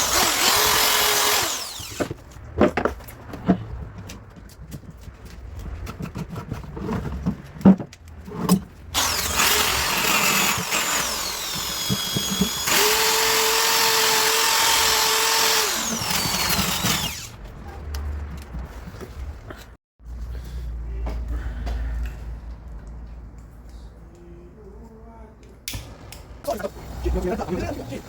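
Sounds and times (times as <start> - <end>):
power tool working plastic: 0.0 - 2.2, 9.0 - 17.4.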